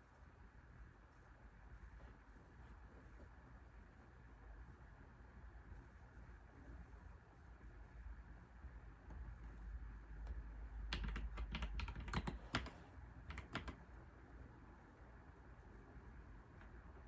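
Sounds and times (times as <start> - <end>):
computer keyboard typing: 10.2 - 13.9.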